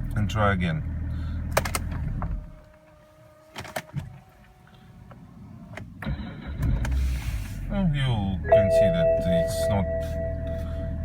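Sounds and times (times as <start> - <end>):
ignition clicks: 1.5 - 2.5, 5.1 - 7.2
starter cranking and engine starting: 6.0 - 7.7.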